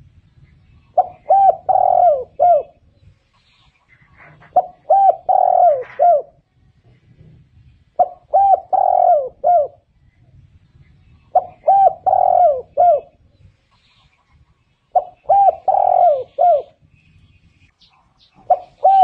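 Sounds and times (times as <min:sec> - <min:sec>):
dove cooing: 0:01.0 - 0:02.8, 0:04.1 - 0:06.4, 0:08.0 - 0:09.9, 0:11.3 - 0:13.2, 0:14.9 - 0:16.8, 0:18.4 - 0:19.0.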